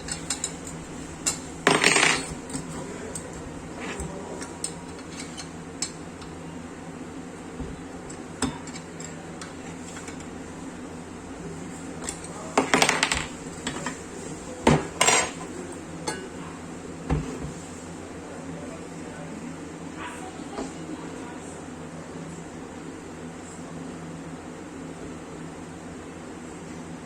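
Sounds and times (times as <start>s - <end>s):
metal tools clinking and clattering: 0.0s - 3.3s, 14.8s - 15.5s
steady low hum: 0.0s - 27.0s.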